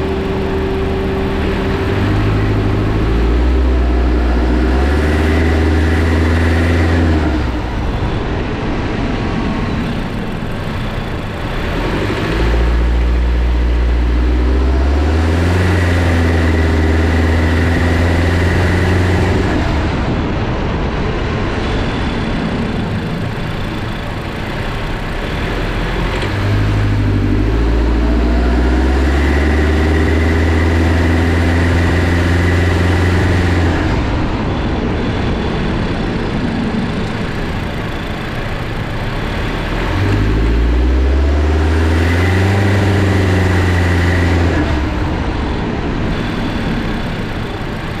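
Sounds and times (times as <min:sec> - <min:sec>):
car engine accelerating: 0:00.0 - 0:48.0
high swishing hissing whine: 0:42.7 - 0:48.0.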